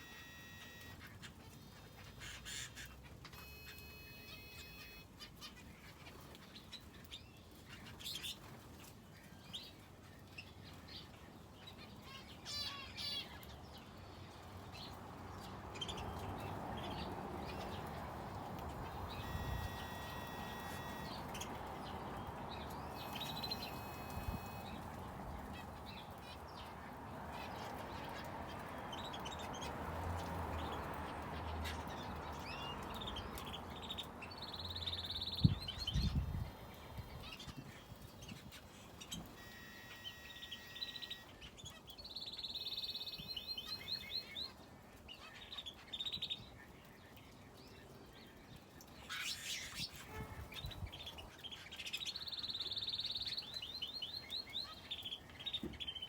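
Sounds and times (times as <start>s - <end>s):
finches and canary chirping: 0.0s - 13.9s, 14.6s - 56.0s.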